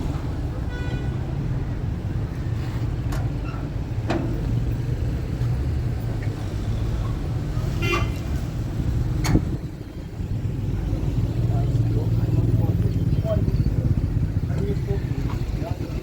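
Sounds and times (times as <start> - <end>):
motor vehicle rumbling: 0.0 - 16.0.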